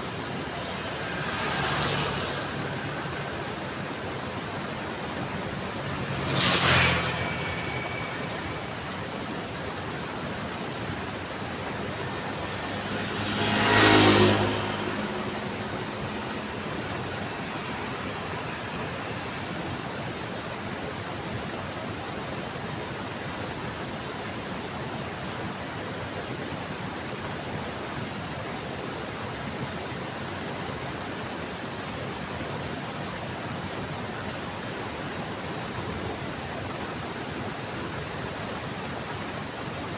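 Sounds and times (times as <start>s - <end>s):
heavy rain: 0.0s - 21.6s
vehicles passing on wet road: 0.0s - 39.9s.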